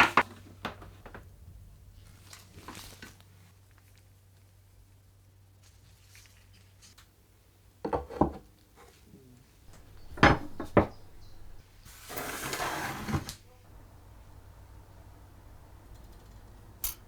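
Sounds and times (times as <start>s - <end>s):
tools knocking down: 9.7s - 11.6s
scraping or rubbing: 9.7s - 13.6s.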